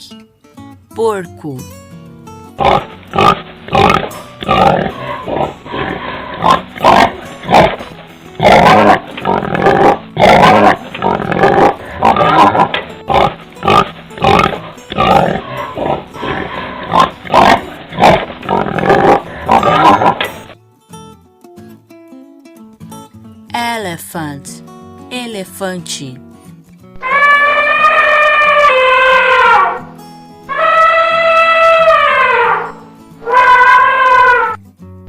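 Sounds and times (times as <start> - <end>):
pig calling: 2.6 - 20.6, 27.0 - 29.9, 30.5 - 34.6.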